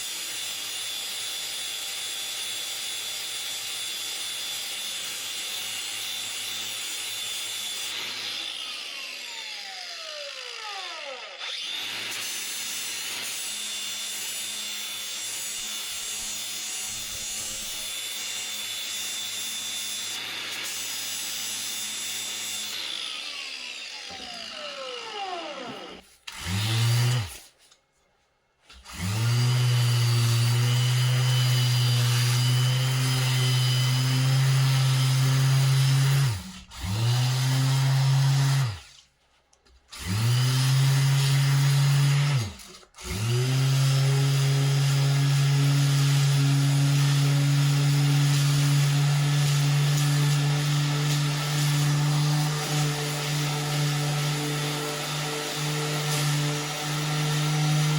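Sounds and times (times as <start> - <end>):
electric grinder grinding metal: 0.0 - 27.4, 28.8 - 38.9, 40.0 - 57.9
grinder motor running down: 8.0 - 12.2, 22.3 - 27.3.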